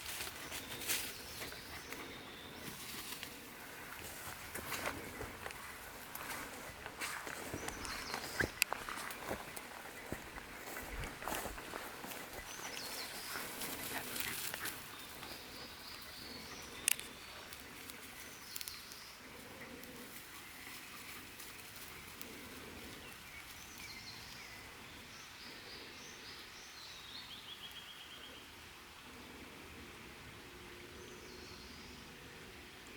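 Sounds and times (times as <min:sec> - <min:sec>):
footsteps crunching on path: 0:00.0 - 0:15.6
birds chirping and whistling: 0:04.0 - 0:18.9.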